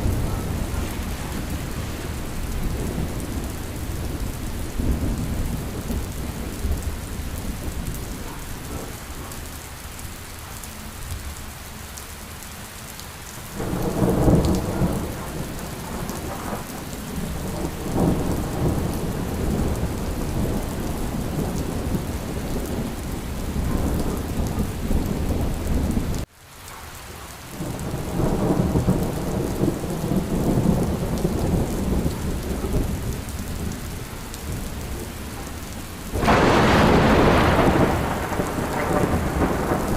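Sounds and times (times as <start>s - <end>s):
low rolling thunder: 0.0s - 9.7s, 13.5s - 26.3s, 27.6s - 39.9s
steady rain falling: 0.0s - 39.9s.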